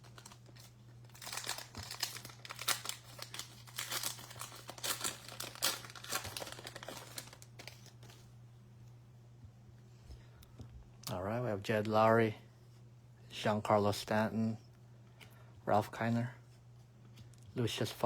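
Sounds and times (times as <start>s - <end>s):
plastic wrapper tearing and crinkling: 0.0s - 8.2s.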